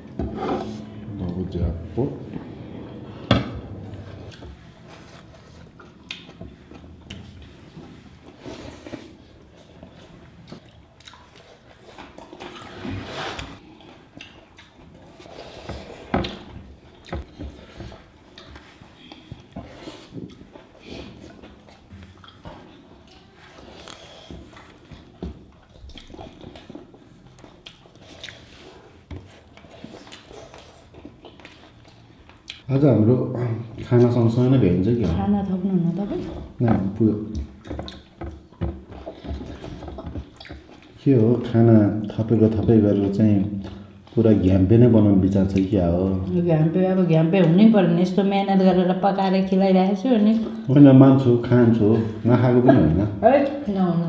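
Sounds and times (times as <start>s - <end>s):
chewing food: 3.7s - 32.7s, 36.1s - 46.3s.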